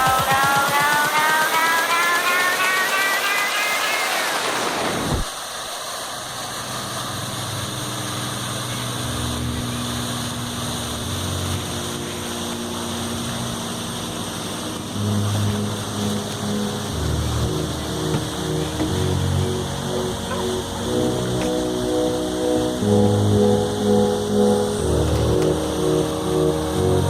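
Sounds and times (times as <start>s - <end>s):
song ending with falling sweep: 0.0s - 5.3s, 11.2s - 27.0s
steady rushing noise: 0.0s - 27.0s.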